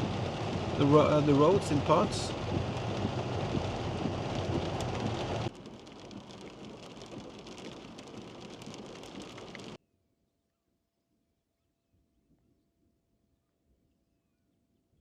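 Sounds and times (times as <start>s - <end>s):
heavy rain pouring: 0.0s - 9.8s.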